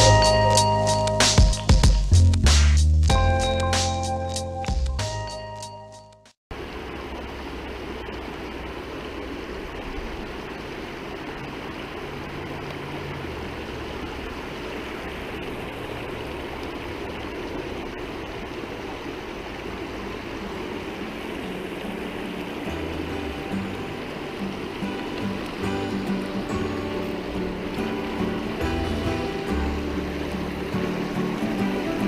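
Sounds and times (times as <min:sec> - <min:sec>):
stream rushing over rocks: 0:06.5 - 0:32.0.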